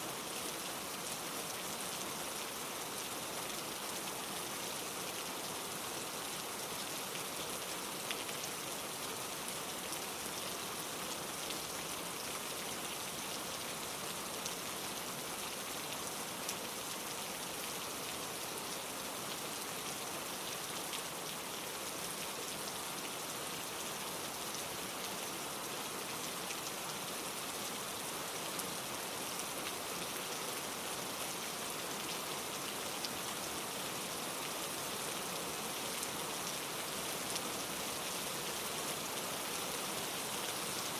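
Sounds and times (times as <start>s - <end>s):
rain falling on leaves: 0.0s - 40.9s.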